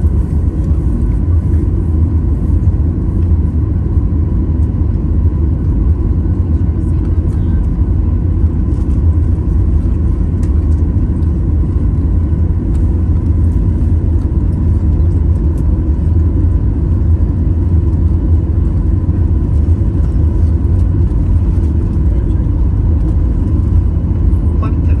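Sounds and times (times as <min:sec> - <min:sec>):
airliner cabin rumble: 0:00.0 - 0:25.0.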